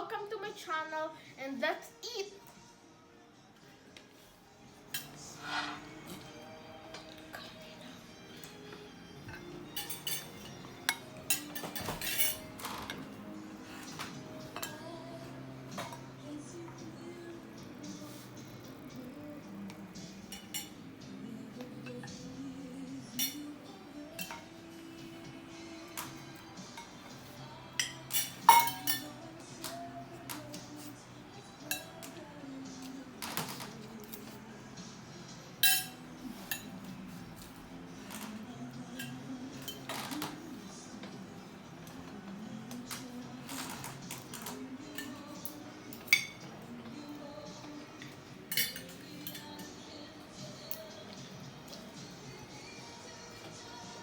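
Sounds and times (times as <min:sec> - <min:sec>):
quiet background music: 0:00.0 - 0:54.0
cutlery clinking on a plate: 0:04.9 - 0:05.9, 0:08.4 - 0:13.2, 0:13.8 - 0:15.0, 0:15.7 - 0:16.1, 0:20.1 - 0:20.8, 0:23.1 - 0:24.6, 0:25.9 - 0:30.6, 0:31.6 - 0:32.2, 0:35.6 - 0:37.5, 0:38.1 - 0:40.4, 0:42.7 - 0:47.0, 0:47.6 - 0:49.8.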